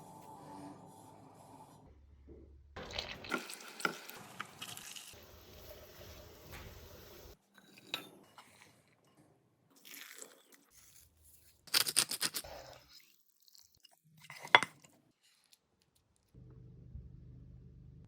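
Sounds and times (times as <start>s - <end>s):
crunchy food scrapes and clicks: 9.8s - 13.9s.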